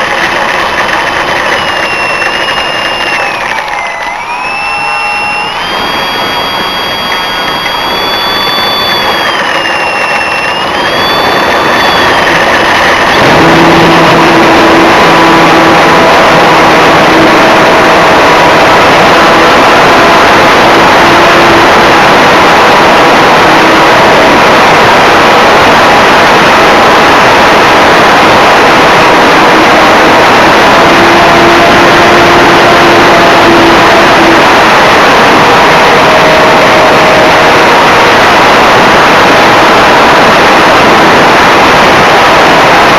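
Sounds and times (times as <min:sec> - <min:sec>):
electric motor whine: 0:00.0 - 0:42.9
rush of motor and wind noise: 0:00.0 - 0:42.9.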